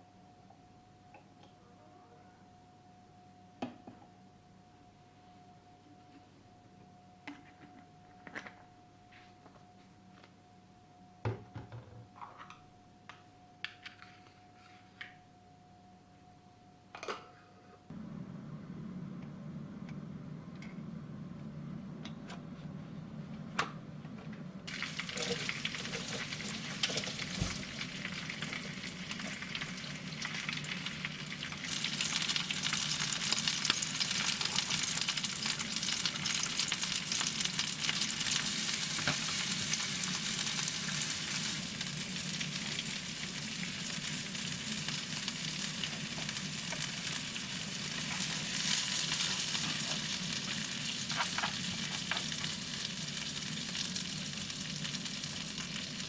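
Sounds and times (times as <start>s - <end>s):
food sizzling in a hot pan: 24.7s - 56.0s.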